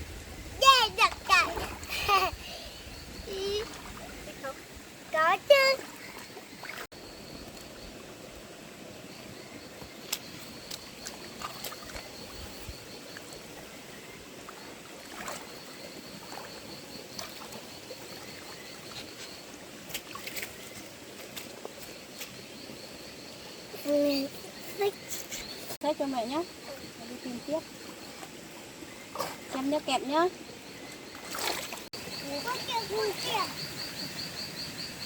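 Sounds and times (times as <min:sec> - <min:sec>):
insect chirping: 0:00.1 - 0:35.0
shallow stream flowing: 0:00.1 - 0:35.0
clicks and splashes from wading: 0:05.7 - 0:06.9, 0:10.0 - 0:12.3, 0:14.4 - 0:22.4, 0:30.9 - 0:31.9.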